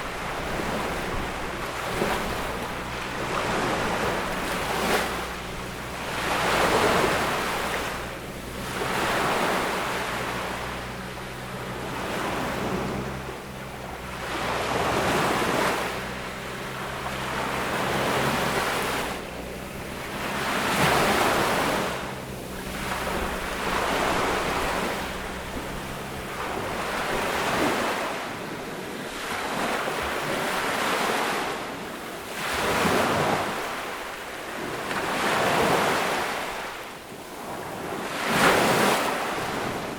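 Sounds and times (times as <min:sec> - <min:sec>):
low steady hum: 0:00.0 - 0:27.8
waves washing onto sandy beach: 0:00.0 - 0:39.9.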